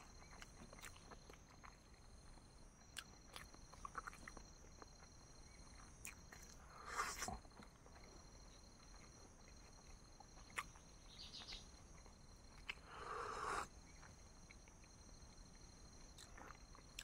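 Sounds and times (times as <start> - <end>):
faint insect drone: 0.0 - 17.0.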